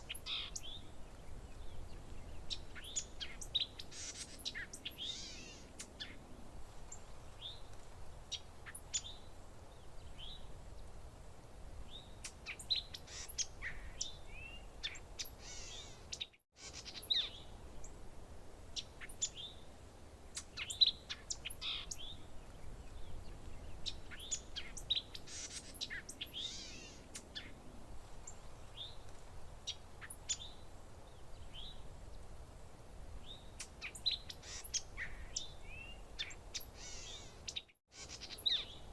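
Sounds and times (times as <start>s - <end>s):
birds chirping and trilling: 0.0s - 6.2s, 11.9s - 17.5s, 20.3s - 27.6s, 33.2s - 38.9s.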